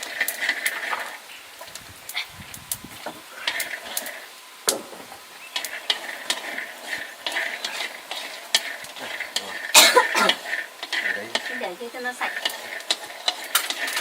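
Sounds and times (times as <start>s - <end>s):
light sizzle: 0.0s - 14.0s
utensil scraping food in pan: 0.0s - 14.0s
utensil clicking against pan: 5.5s - 14.0s.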